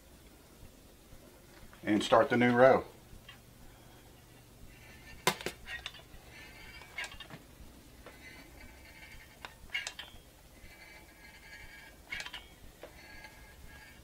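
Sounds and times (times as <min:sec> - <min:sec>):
nozzle squeaking on tray: 0:04.7 - 0:07.4, 0:08.1 - 0:14.0.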